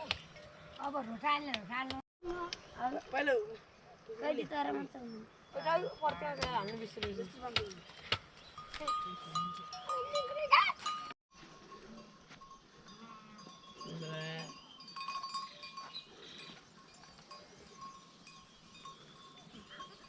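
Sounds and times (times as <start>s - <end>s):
livestock bells ringing: 8.6s - 20.0s.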